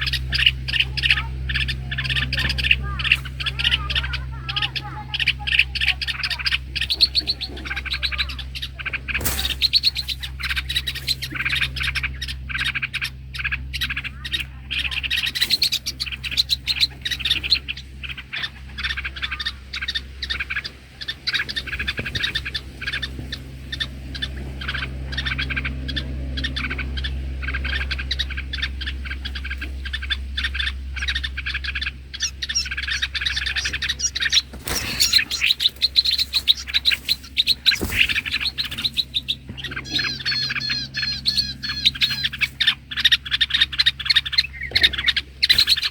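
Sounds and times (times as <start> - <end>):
small birds chirping: 0.0 - 45.9
steady low hum: 0.0 - 45.9.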